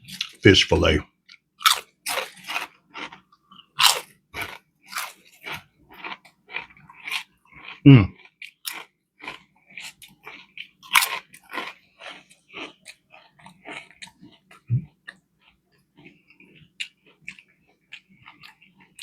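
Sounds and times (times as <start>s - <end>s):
person chewing crunchy food: 0.0s - 0.4s, 1.1s - 19.0s.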